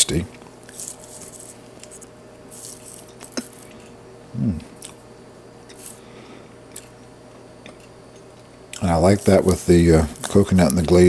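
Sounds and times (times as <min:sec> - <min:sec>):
person chewing: 0:00.7 - 0:06.0, 0:06.6 - 0:08.9
person humming: 0:04.3 - 0:04.7
mouth noises: 0:04.3 - 0:05.0.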